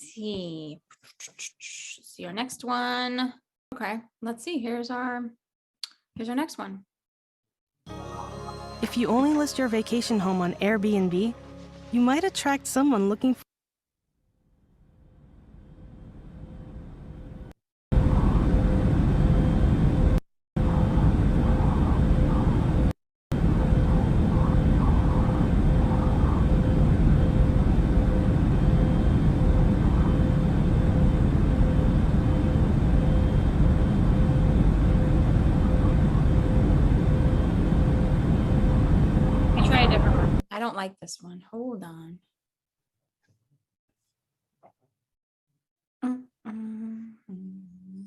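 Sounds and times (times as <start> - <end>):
faint constant whine: 15.2 - 40.4
aircraft rumble through speaker: 23.4 - 40.4.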